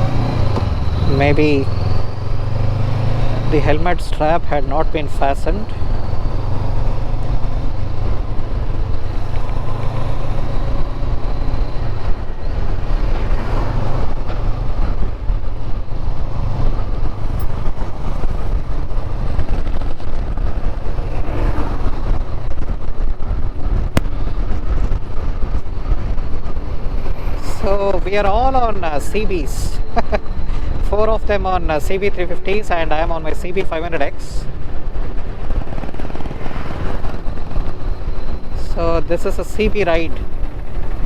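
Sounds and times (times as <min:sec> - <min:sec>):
motorcycle engine running: 0:00.0 - 0:32.6
wind and road rush: 0:00.0 - 0:41.0.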